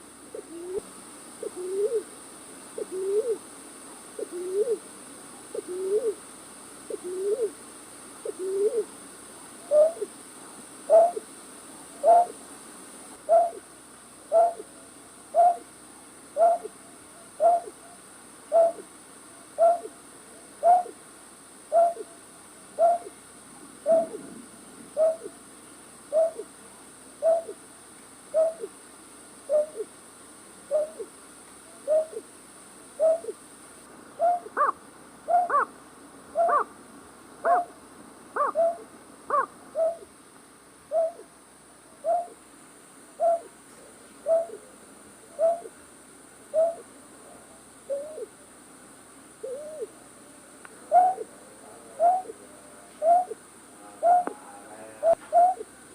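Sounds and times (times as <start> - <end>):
night bird hooting: 0.3 - 2.1, 2.8 - 3.4, 4.2 - 4.8, 5.5 - 6.2, 6.9 - 7.6, 8.2 - 8.9, 9.6 - 10.1, 10.9 - 11.3, 12.0 - 12.4, 13.2 - 13.7, 14.3 - 15.7, 16.4 - 18.9, 19.6 - 20.0, 20.6 - 21.0, 21.7 - 22.2, 22.8 - 23.2, 23.8 - 24.3, 25.0 - 25.4, 26.1 - 26.5, 27.2 - 27.6, 28.3 - 28.8, 29.5 - 29.9, 30.7 - 31.1, 31.7 - 32.3, 33.0 - 33.4, 34.2 - 35.7, 36.3 - 36.7, 38.4 - 40.1, 40.9 - 41.3, 42.0 - 42.4, 43.2 - 43.6, 44.2 - 44.7, 45.3 - 45.8, 46.5 - 46.9, 47.9 - 48.4, 49.4 - 50.0, 50.8 - 51.3, 51.9 - 52.4, 53.0 - 55.7.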